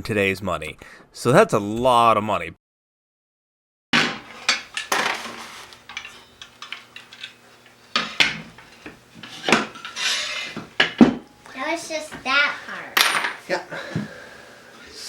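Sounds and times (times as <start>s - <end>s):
metal tools clinking and clattering: 4.2s - 11.0s, 13.0s - 13.4s.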